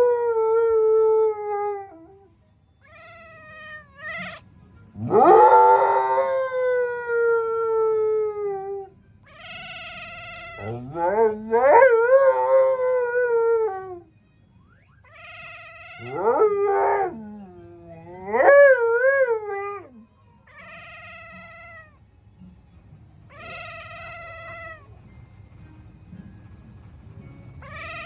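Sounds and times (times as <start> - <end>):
dog howling: 0.0 - 2.2, 5.0 - 8.9, 9.9 - 14.1, 15.6 - 20.0.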